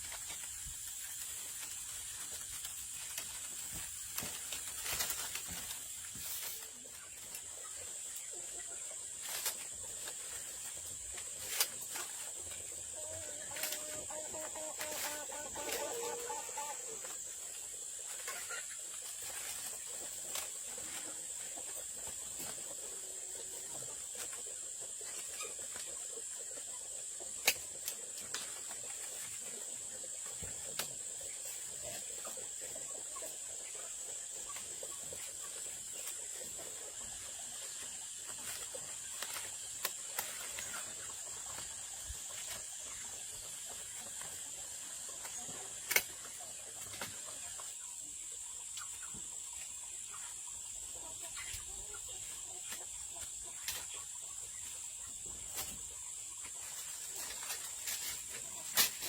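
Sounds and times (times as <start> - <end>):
insects droning: 9.2 - 19.7.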